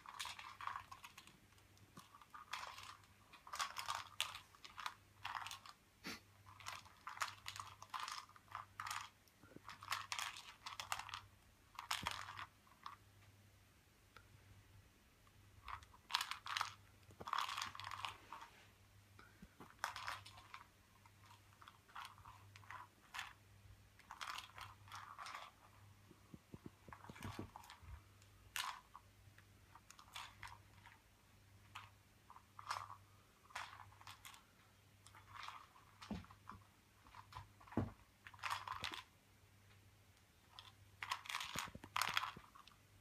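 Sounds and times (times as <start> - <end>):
cat crunching dry treats: 0.0 - 5.8, 6.4 - 13.0, 15.6 - 18.4, 19.6 - 23.4, 24.0 - 25.8, 26.6 - 29.0, 29.7 - 31.0, 31.7 - 39.1, 40.5 - 42.8.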